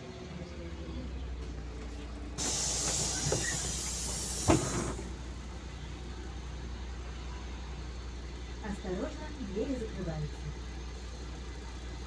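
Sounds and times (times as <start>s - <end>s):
bus engine idling: 0.0s - 12.0s
compressed air hiss: 2.4s - 5.2s.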